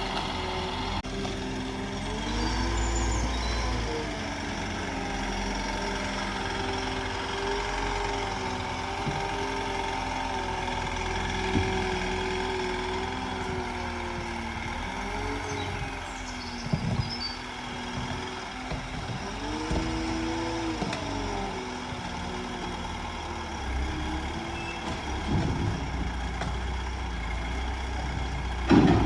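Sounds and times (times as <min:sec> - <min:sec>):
engine running steadily: 0:00.0 - 0:29.0.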